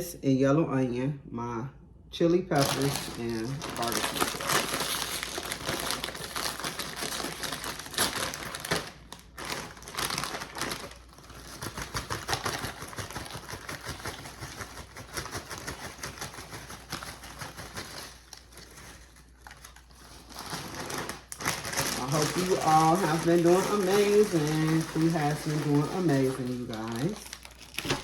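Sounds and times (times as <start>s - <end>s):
food packaging crinkling: 2.5s - 28.0s.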